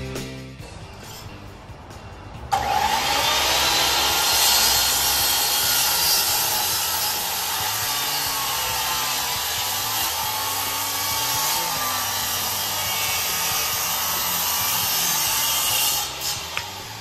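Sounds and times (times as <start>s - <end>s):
circular saw cutting wood: 2.5s - 17.0s.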